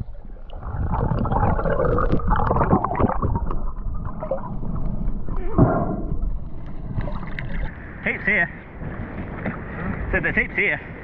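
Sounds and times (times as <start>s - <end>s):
muffled water gurgling: 0.0s - 10.2s.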